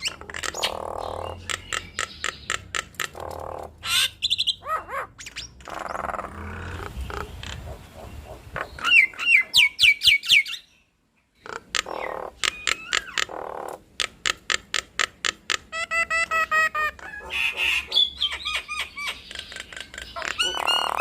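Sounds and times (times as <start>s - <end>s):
starlings singing: 0.0s - 10.9s, 17.0s - 21.0s.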